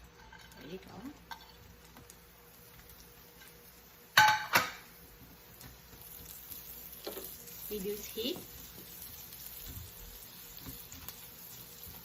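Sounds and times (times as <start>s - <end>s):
onion and garlic sizzling: 0.0s - 12.0s
utensil clinking on frying pan: 4.2s - 4.8s.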